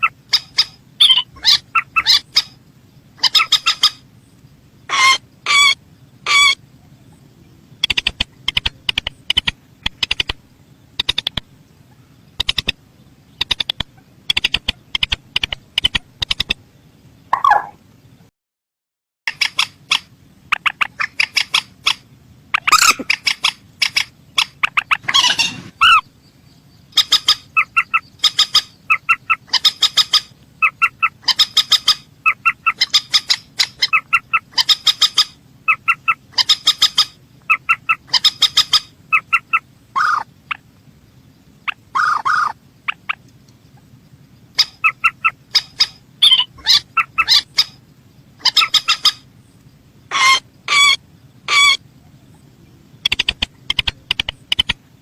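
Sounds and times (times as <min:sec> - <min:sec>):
rail bird calling: 0:00.0 - 0:17.9, 0:19.3 - 0:55.0.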